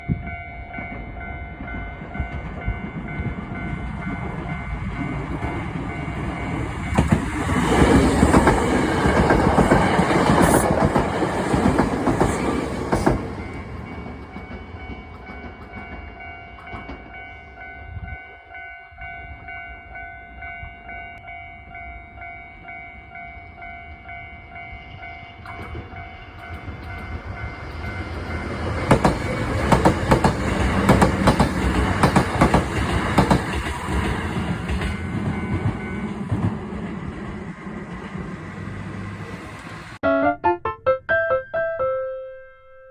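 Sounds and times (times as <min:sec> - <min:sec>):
level crossing warning bell: 0:00.0 - 0:07.4, 0:13.2 - 0:28.8
train wheels clattering: 0:05.1 - 0:17.3, 0:25.4 - 0:39.8.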